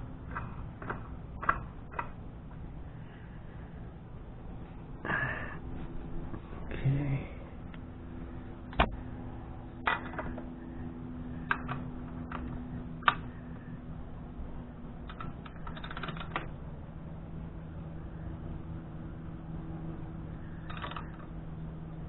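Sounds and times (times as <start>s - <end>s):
steady low hum: 0.0s - 22.0s
clicks and knocks of handling parts: 0.2s - 2.6s, 9.8s - 10.5s, 11.4s - 13.4s, 15.0s - 16.6s, 20.6s - 21.3s.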